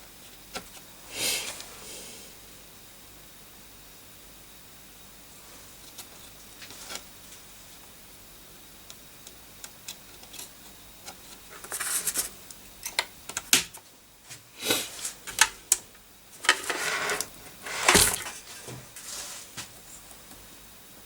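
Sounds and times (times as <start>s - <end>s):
rustling scrapes: 16.4s - 19.6s.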